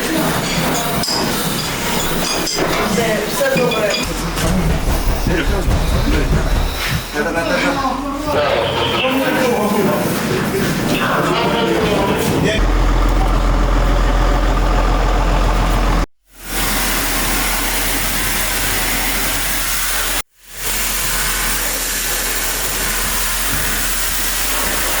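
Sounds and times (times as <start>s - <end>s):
vehicle engine running: 12.6s - 16.1s.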